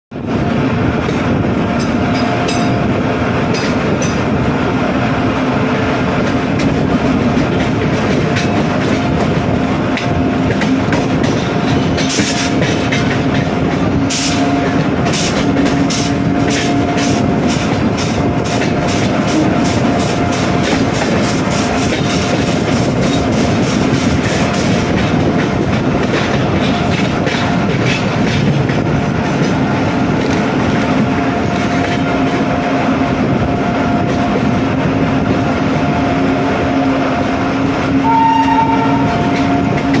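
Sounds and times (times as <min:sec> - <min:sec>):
train rumble and hum: 0:00.0 - 0:40.0
wheels clicking over rail joints: 0:06.2 - 0:32.4
train horn blast: 0:19.1 - 0:20.7, 0:38.0 - 0:40.0.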